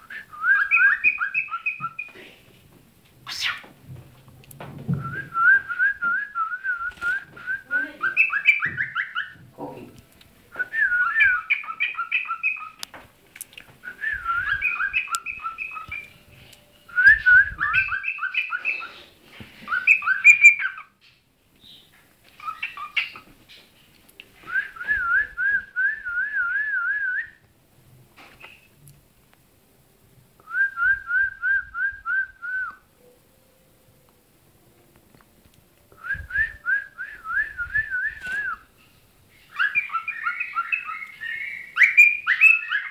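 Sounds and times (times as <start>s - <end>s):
cockatiel whistling: 0.1s - 2.1s, 5.0s - 9.4s, 10.7s - 12.8s, 13.9s - 16.1s, 16.9s - 19.0s, 19.7s - 20.9s, 39.5s - 42.9s.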